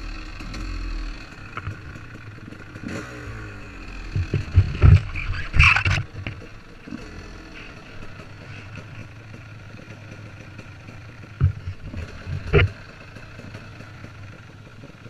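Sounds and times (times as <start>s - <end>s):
motorcycle engine running: 0.0s - 15.0s
loud knocks and clatter: 4.1s - 5.2s, 11.4s - 12.7s.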